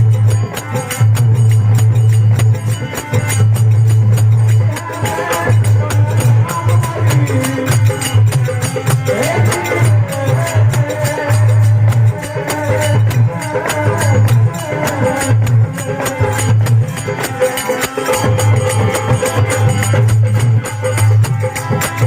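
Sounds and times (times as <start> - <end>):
hand drum beat: 0.0 - 22.0.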